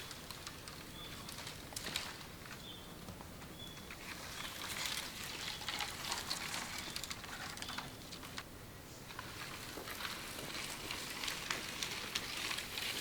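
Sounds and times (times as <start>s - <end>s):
light clicks and crackles: 0.0s - 8.5s, 9.1s - 13.0s
bird chirping: 0.9s - 1.3s, 2.6s - 4.6s.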